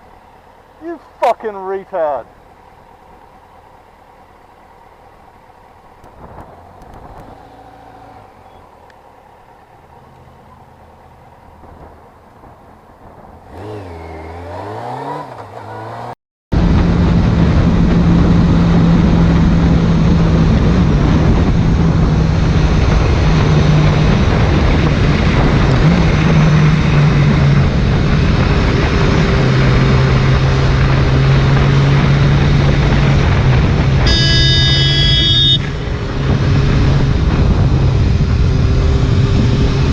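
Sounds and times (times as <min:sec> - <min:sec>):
motorcycle engine running steadily: 0:00.0 - 0:13.7, 0:16.6 - 0:39.9
motorcycle engine revving: 0:05.1 - 0:39.9
wind rush: 0:06.0 - 0:07.6, 0:16.5 - 0:39.9.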